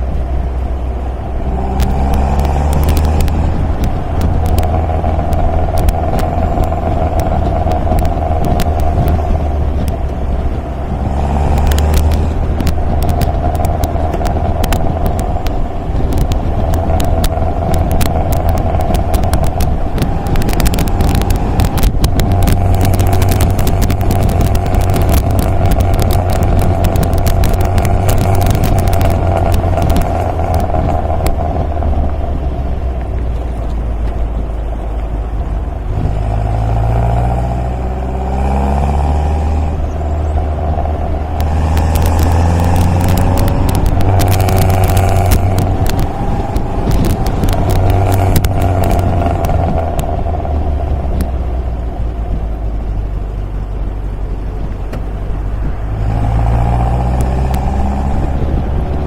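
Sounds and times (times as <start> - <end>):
car engine running: 0.0 - 59.0
short crackles and clicks: 1.4 - 59.0.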